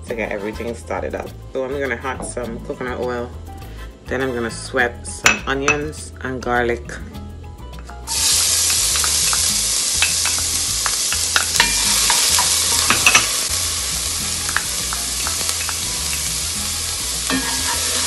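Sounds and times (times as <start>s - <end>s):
onion sizzling in hot oil: 8.1s - 18.0s
spoon tapping on pot: 9.0s - 13.4s.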